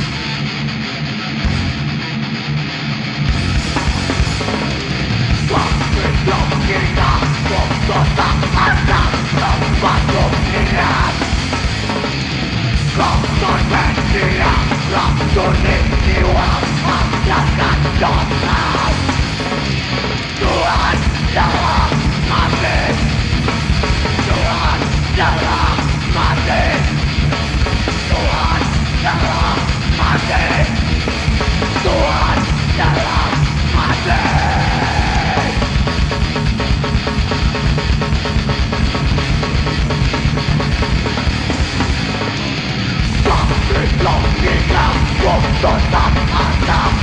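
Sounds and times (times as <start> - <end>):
heavy metal band playing: 0.0 - 47.0
shouted vocals: 20.4 - 23.1, 24.2 - 27.0, 28.0 - 31.0, 31.7 - 35.7, 43.2 - 47.0.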